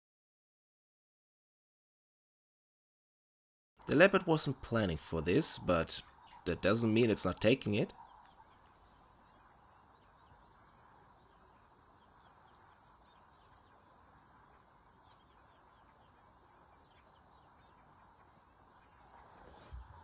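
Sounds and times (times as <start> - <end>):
faint background hiss: 3.8 - 12.3.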